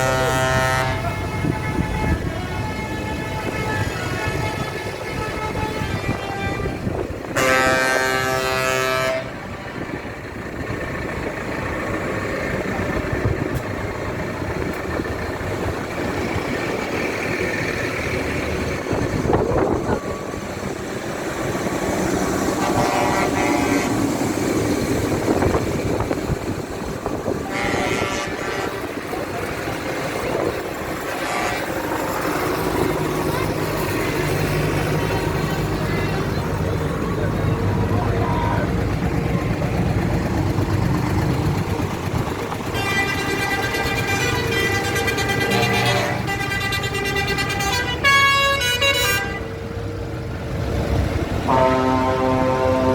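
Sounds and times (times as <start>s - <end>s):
horn blasts: 0.0s - 10.0s, 18.6s - 26.1s, 27.0s - 36.5s, 42.6s - 49.6s, 51.4s - 52.9s
tractor engines rumbling: 0.0s - 52.9s.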